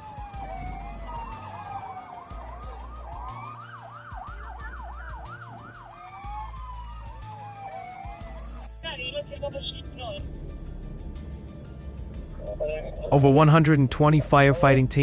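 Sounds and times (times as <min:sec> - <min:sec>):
slow falling siren: 0:00.0 - 0:08.8, 0:09.8 - 0:15.0
rapid yelping siren: 0:00.0 - 0:10.2
low background music: 0:00.0 - 0:15.0.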